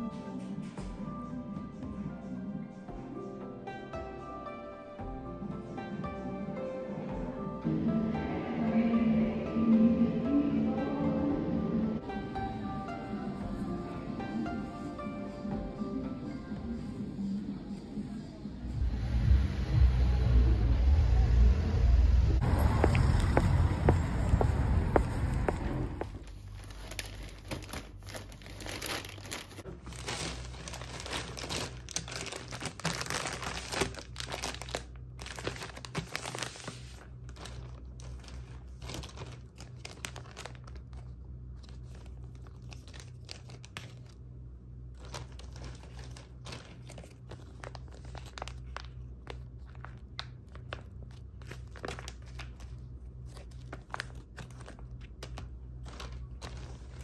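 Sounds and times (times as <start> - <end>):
steady low hum: 7.4 - 57.0
packaging crinkling and rustling: 26.0 - 44.2, 44.9 - 57.0
packaging tearing: 26.6 - 41.0.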